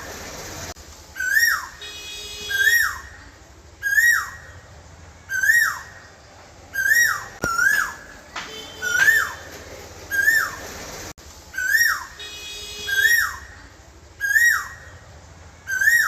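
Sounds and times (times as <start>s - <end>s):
bird whistled call: 1.2s - 3.2s, 3.8s - 4.6s, 5.3s - 6.0s, 6.7s - 9.5s, 10.1s - 10.6s, 11.5s - 13.6s, 14.2s - 14.9s, 15.7s - 16.0s.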